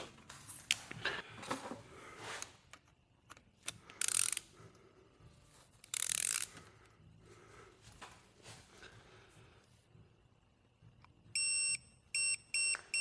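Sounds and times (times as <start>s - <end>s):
ratchet wrench clicking: 3.6s - 4.5s, 5.8s - 6.6s.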